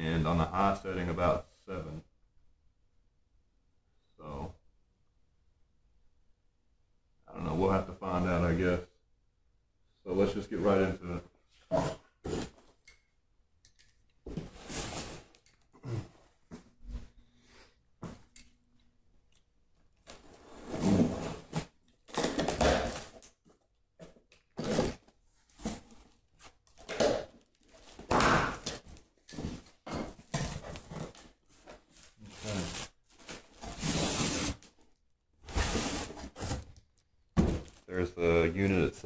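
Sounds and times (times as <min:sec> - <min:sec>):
cardboard tearing and rustling: 0:27.3 - 0:34.8, 0:35.5 - 0:36.7
box thunks: 0:37.4 - 0:37.8.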